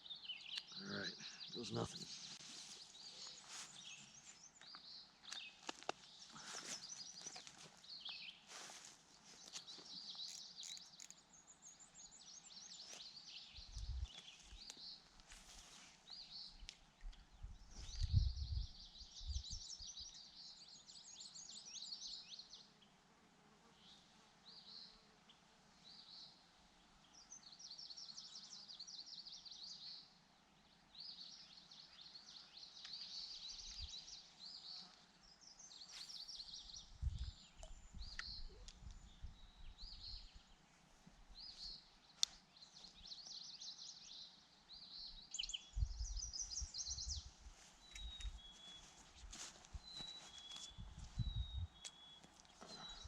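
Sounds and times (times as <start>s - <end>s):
songbirds trilling: 0.0s - 15.1s, 41.3s - 53.0s.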